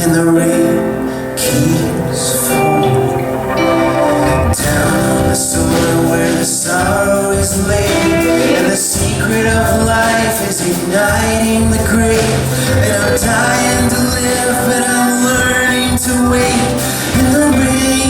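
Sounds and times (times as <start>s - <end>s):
person singing: 0.0s - 18.0s
live band playing: 0.4s - 18.0s
drum hits: 3.5s - 18.0s.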